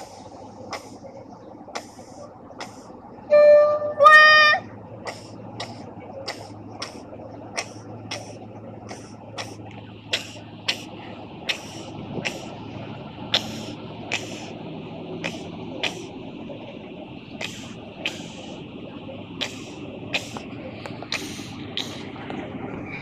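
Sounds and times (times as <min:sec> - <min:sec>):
locomotive engine hum: 0:00.0 - 0:23.0
locomotive horn blasts: 0:03.2 - 0:04.7.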